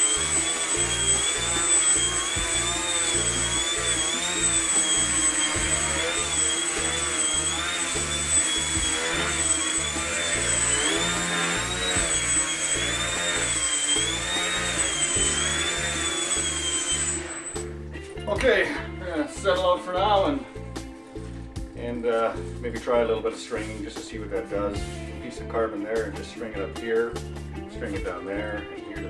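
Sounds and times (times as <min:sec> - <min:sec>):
model plane motor whining: 0:00.0 - 0:17.7
background music with beat: 0:00.0 - 0:29.0.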